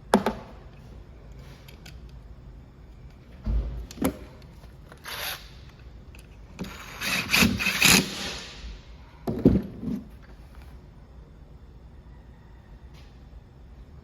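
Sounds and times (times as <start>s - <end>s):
thump: 3.4s - 3.9s.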